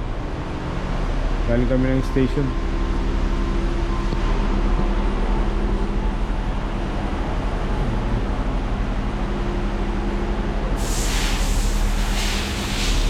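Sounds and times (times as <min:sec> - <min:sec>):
vehicle engine rumbling: 0:00.0 - 0:13.0
hiss of rushing air: 0:10.7 - 0:13.0.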